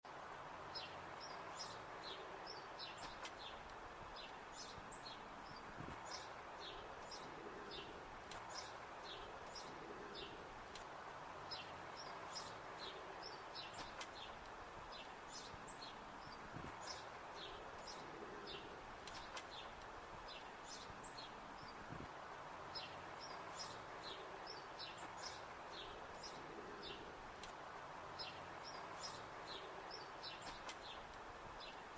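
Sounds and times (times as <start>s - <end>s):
faint outdoor hum: 0.1s - 31.9s
small birds chirping: 0.2s - 31.9s.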